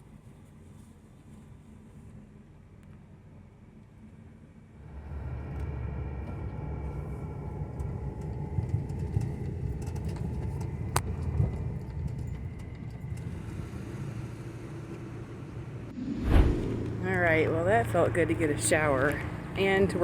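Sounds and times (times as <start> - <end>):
vehicle driving rumble: 4.8 - 20.0.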